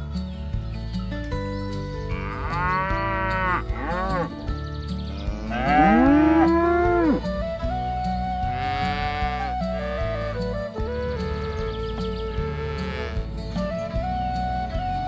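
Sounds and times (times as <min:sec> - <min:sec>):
background music: 0:00.0 - 0:15.0
cows mooing: 0:02.1 - 0:04.3, 0:05.1 - 0:07.3, 0:08.5 - 0:10.2, 0:12.4 - 0:13.3.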